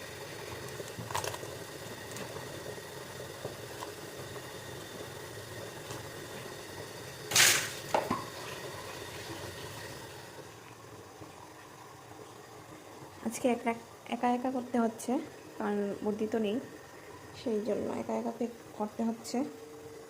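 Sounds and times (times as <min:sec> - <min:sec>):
pot bubbling on stove: 0:00.0 - 0:20.0.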